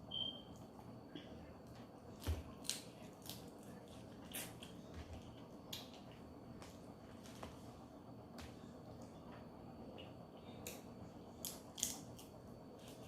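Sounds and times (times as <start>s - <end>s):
crab shells cracking: 11.4s - 12.3s.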